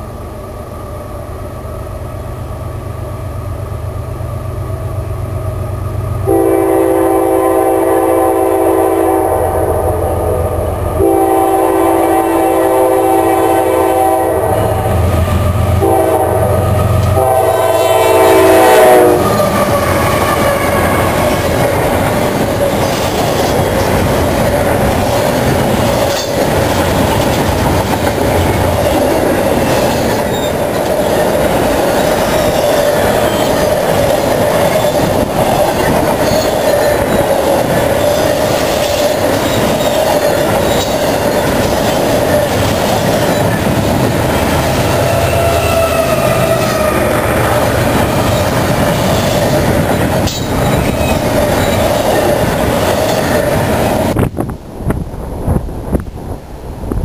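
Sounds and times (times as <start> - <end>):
freight train rolling past: 0.0 - 57.0
locomotive air horn chord: 6.2 - 15.1, 15.7 - 21.2, 44.9 - 47.1.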